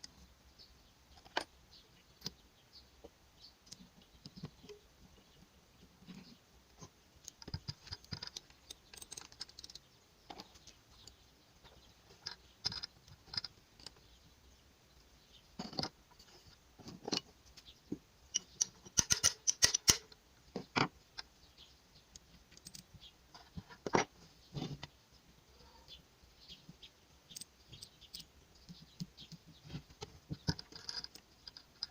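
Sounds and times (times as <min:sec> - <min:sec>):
metal parts and tools clinking: 0:07.2 - 0:14.1, 0:18.3 - 0:20.2, 0:22.5 - 0:23.0, 0:30.3 - 0:31.9.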